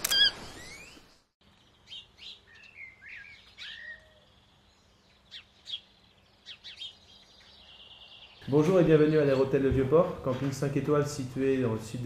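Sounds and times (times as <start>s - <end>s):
small birds chirping and whistling: 0.0s - 8.4s.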